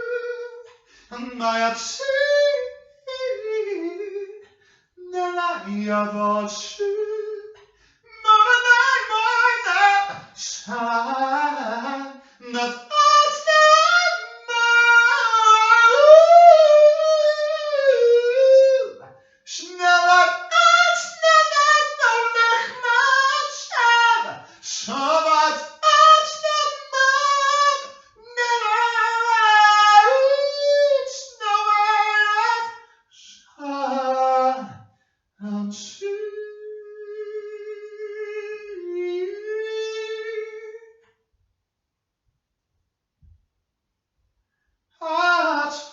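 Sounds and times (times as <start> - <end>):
person singing unaccompanied: 0.0 - 34.7, 45.0 - 45.9.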